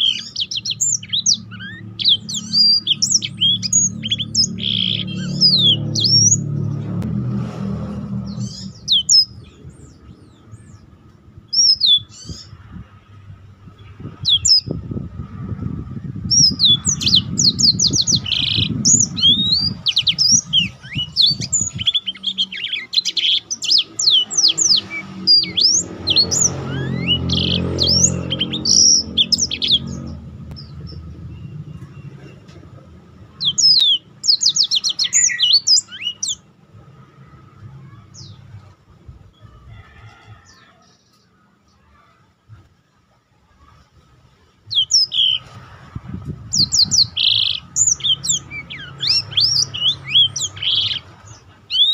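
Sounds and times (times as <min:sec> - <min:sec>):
canary singing trills: 0:00.0 - 0:07.0, 0:08.0 - 0:42.6, 0:43.5 - 0:51.9
low rumble: 0:27.2 - 0:33.4.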